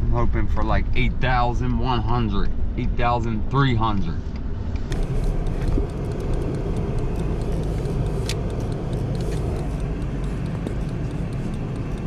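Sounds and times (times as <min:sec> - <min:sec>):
truck engine rumbling: 0:00.0 - 0:12.0
light ticks: 0:04.3 - 0:12.0
sharp click: 0:04.3 - 0:12.0.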